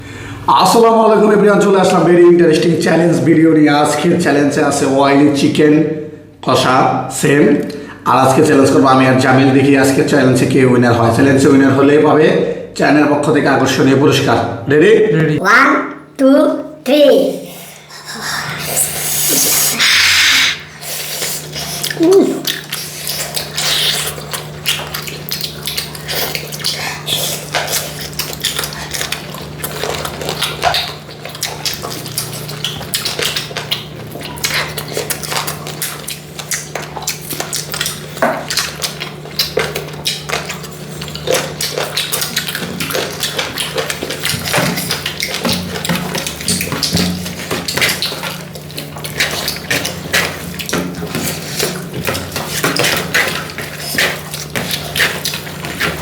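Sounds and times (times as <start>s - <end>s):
steady low hum: 15.1s - 56.0s.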